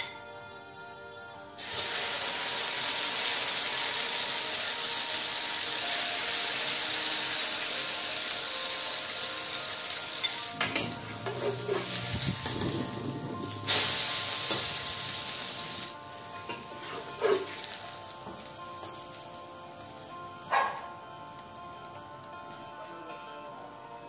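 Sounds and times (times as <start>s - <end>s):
fritter sizzling in oil: 1.6s - 20.9s
metal spatula scraping pan: 10.2s - 14.8s, 16.5s - 17.7s.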